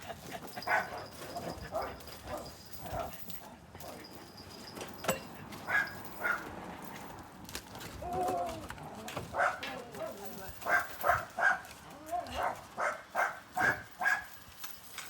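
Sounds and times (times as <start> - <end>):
dog barking: 0.6 - 1.0, 5.6 - 6.5, 9.3 - 11.7, 12.3 - 14.4.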